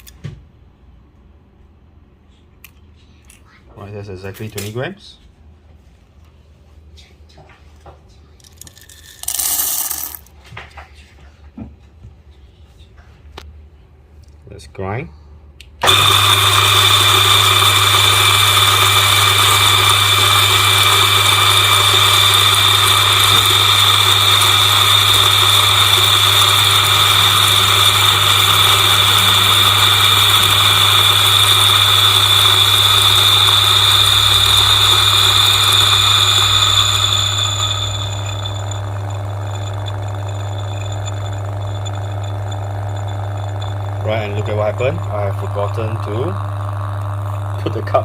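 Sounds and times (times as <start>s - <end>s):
coffee grinder motor whining: 15.8s - 48.0s.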